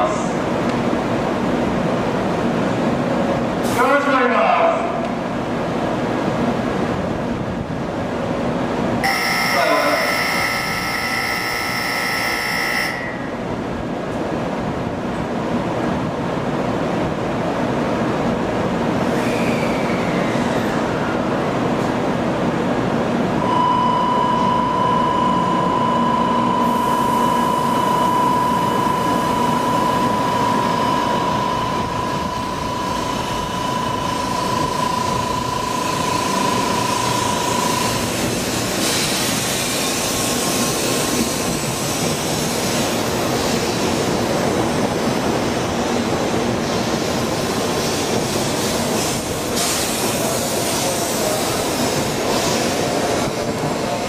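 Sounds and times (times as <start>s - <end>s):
electric train running hum: 5.0s - 54.0s
single steady tone: 9.0s - 13.4s, 23.4s - 38.0s.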